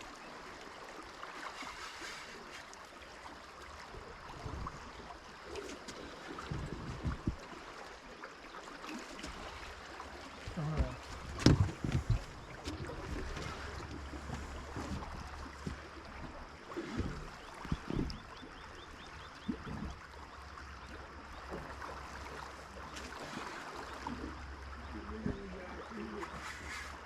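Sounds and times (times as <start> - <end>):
wind rumbling on microphone: 3.9 - 7.8, 10.4 - 20.1.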